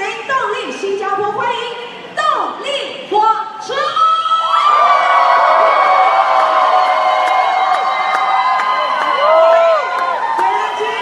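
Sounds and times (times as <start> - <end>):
crowd screaming and cheering: 4.4 - 11.0.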